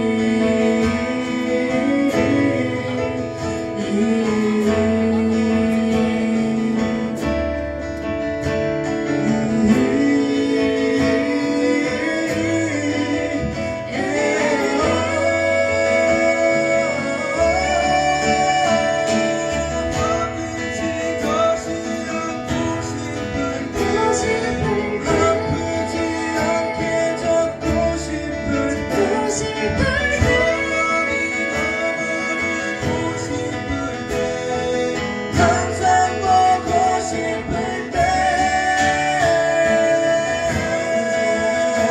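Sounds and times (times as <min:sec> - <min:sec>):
acoustic guitar: 0:00.0 - 0:41.9
bass: 0:00.0 - 0:41.9
live band playing pop ballad: 0:00.0 - 0:41.9.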